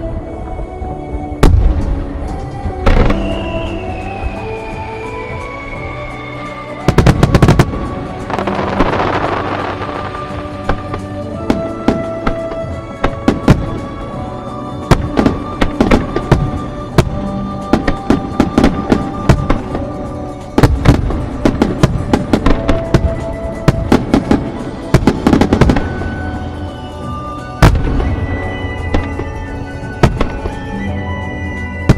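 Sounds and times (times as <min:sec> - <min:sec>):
background music: 0:00.0 - 0:31.9
heavy firework boom: 0:01.4 - 0:02.2
crackling bursts: 0:06.3 - 0:14.1.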